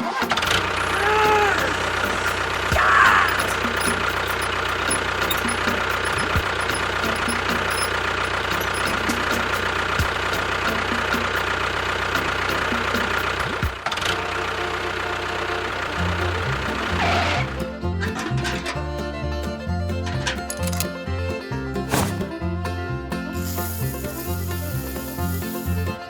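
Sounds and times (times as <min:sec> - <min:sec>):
engine idling: 0:00.0 - 0:26.0
short rasping sound: 0:21.8 - 0:22.4.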